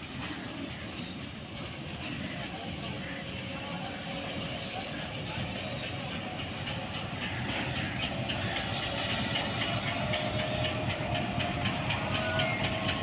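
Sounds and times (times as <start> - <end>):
train rumble: 0.0 - 13.0
train wheels clattering over joints: 3.2 - 13.0
thin squealing tones: 8.7 - 13.0.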